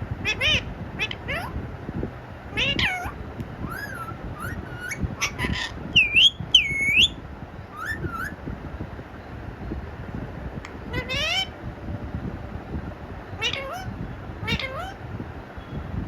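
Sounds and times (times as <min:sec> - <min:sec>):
parrot meow-like calls: 0:00.2 - 0:01.6, 0:02.5 - 0:08.4, 0:10.9 - 0:11.5, 0:13.4 - 0:15.0.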